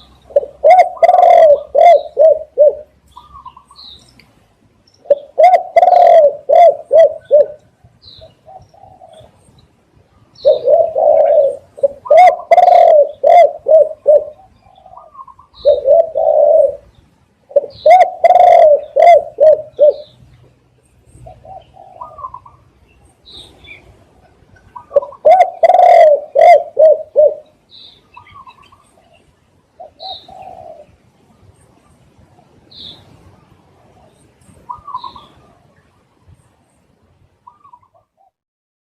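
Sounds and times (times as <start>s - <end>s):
dove cooing: 0.2s - 3.7s, 5.0s - 9.5s, 10.4s - 20.2s, 21.2s - 22.7s, 24.2s - 31.0s, 33.9s - 35.8s.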